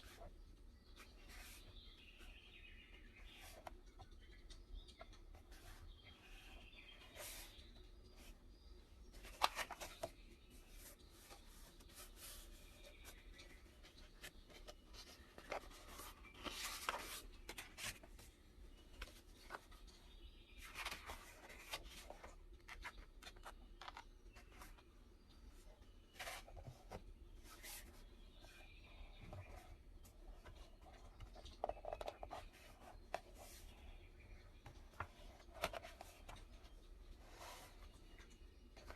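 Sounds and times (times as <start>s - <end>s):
paper rustling and scraping: 9.1s - 18.2s.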